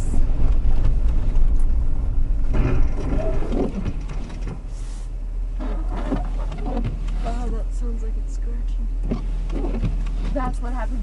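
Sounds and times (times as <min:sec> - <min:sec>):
vehicle engine rumble: 0:00.0 - 0:11.0
wipers scratching on snow: 0:04.7 - 0:07.7, 0:09.1 - 0:11.0.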